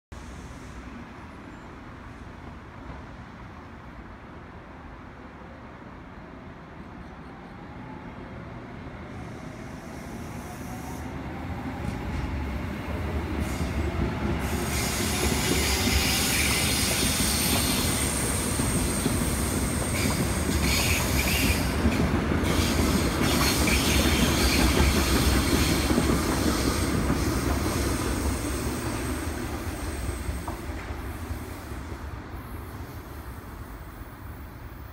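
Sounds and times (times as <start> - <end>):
wheels rumbling on rail: 8.6 - 34.9.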